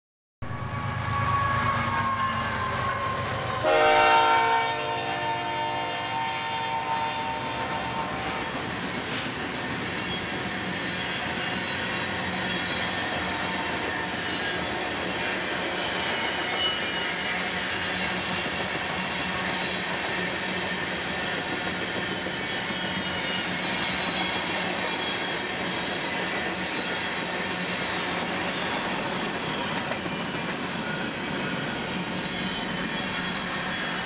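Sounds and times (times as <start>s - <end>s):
locomotive air horn blast: 0.4s - 8.4s.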